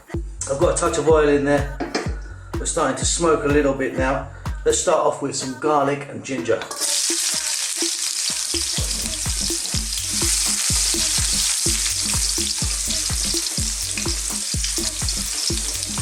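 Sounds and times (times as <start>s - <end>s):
rhythmic low thuds: 0.0s - 5.6s, 7.2s - 16.0s
garlic sizzling in oil: 6.7s - 16.0s.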